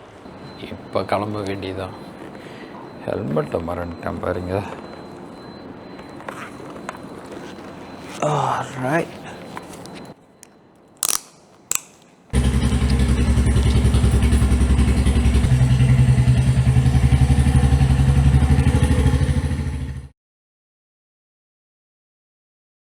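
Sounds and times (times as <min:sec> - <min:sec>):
short clicks: 0:11.0 - 0:12.2
motorcycle engine running: 0:12.4 - 0:20.1.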